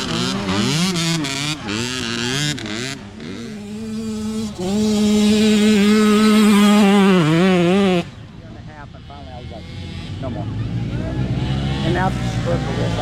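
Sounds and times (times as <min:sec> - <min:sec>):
dirt bike at high revs: 0:00.0 - 0:13.0
dirt bike engines revving: 0:00.0 - 0:13.0.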